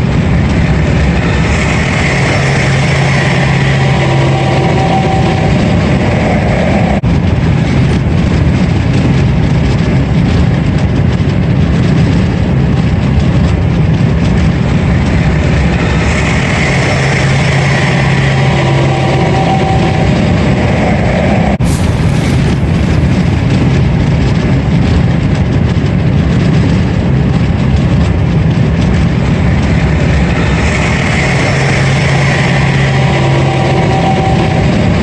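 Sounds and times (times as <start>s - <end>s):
road noise: 21.6s - 25.0s.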